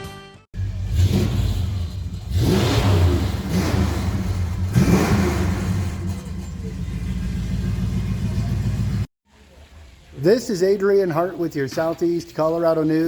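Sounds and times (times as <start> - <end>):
car engine idling and revving: 0.6 - 9.1.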